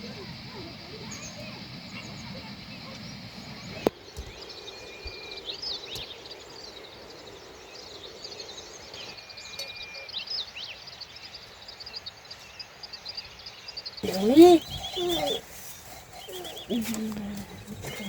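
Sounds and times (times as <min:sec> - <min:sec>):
birds chirping: 0:00.0 - 0:18.0
long whistled bird notes: 0:14.0 - 0:18.0.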